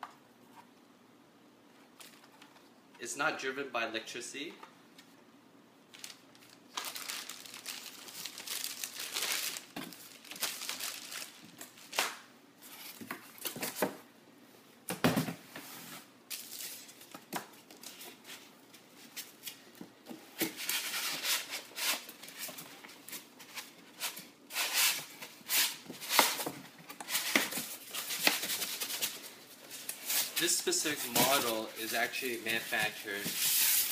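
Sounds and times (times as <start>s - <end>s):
packaging crinkling and rustling: 5.9s - 12.1s, 25.8s - 33.9s.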